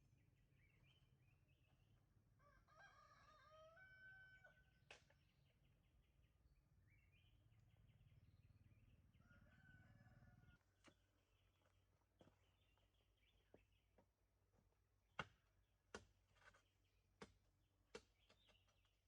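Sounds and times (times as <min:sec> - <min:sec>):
small birds chirping: 0:00.0 - 0:02.2, 0:04.4 - 0:14.7, 0:16.3 - 0:19.0
distant rooster crowing: 0:02.4 - 0:04.8, 0:09.2 - 0:10.7.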